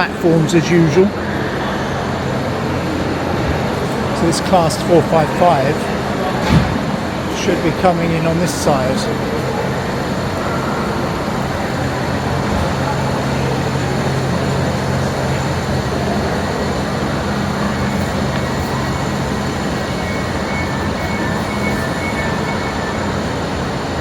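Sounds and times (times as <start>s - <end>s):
train low hum: 0.0s - 24.0s
train rumbling: 0.0s - 24.0s
faint high tone: 16.4s - 24.0s.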